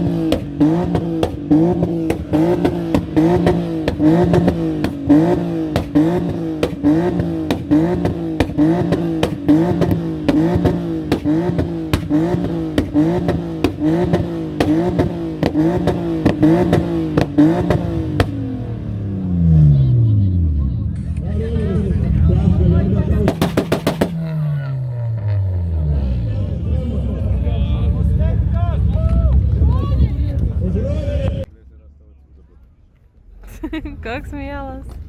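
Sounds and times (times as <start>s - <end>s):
sharp exhaust cracks: 0.0s - 18.5s, 23.3s - 25.8s
car engine revving: 0.0s - 31.5s.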